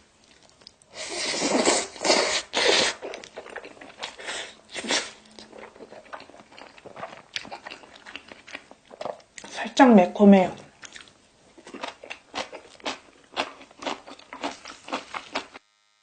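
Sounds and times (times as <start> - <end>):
soft wet chewing: 0.2 - 9.6, 10.6 - 15.6
noisy noodle slurping: 1.0 - 8.2.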